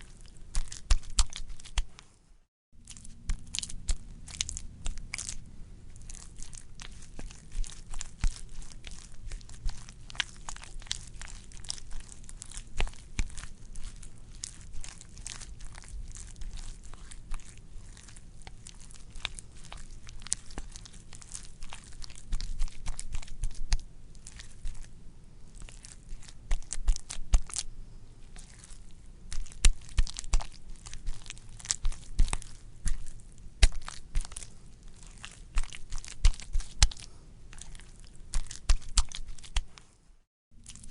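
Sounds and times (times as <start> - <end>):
wet sticky clicks and crackles: 0.0 - 2.0, 2.8 - 24.9, 25.5 - 27.7, 28.3 - 39.9, 40.6 - 40.9.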